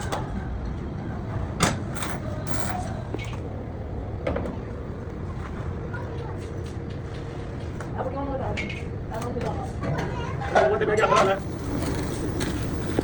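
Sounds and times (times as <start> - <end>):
low workshop rumble: 0.0 - 13.0.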